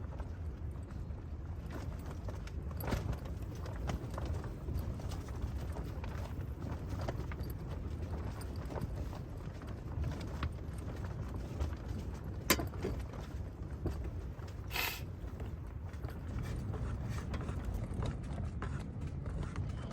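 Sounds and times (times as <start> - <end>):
light clicks and knocks: 11.4 - 14.6.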